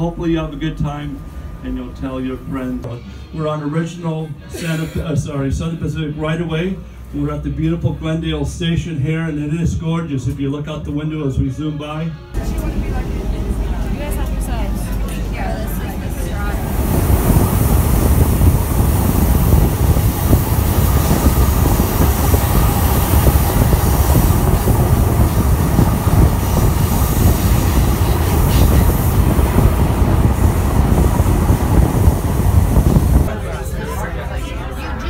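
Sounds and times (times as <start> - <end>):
train wheels roaring on rail: 12.4 - 35.0.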